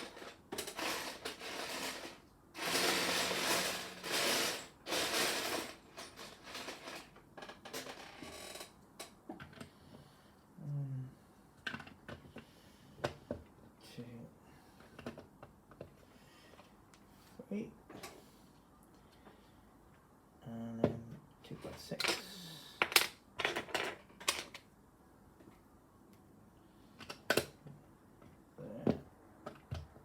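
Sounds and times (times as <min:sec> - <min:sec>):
plastic lego pieces clattering: 0:00.0 - 0:08.1.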